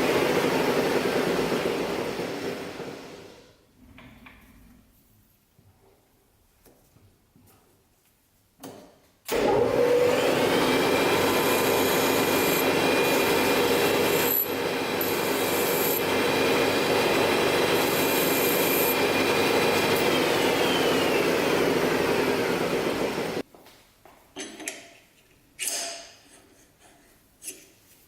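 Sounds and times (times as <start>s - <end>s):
motor whine: 9.3s - 23.4s
machine tool cutting steel: 9.4s - 23.4s.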